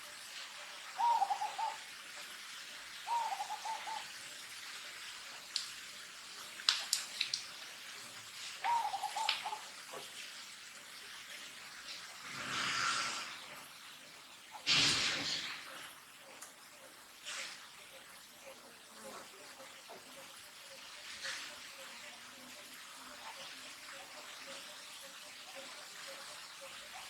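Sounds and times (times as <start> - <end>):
steady hiss: 0.0 - 27.0
bird hooting call: 1.0 - 1.8, 3.1 - 4.1, 8.6 - 9.6.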